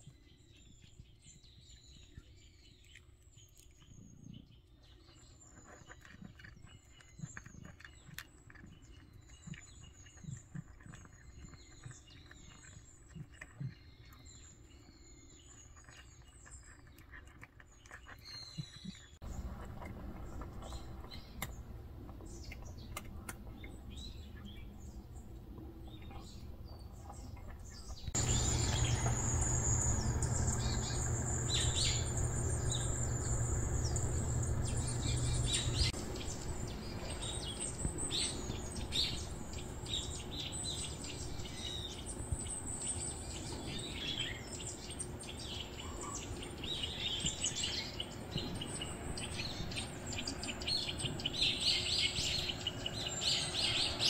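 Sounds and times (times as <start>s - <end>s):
small songbirds chirping: 0.0s - 19.5s, 20.4s - 54.0s
low steady hum: 28.2s - 40.5s.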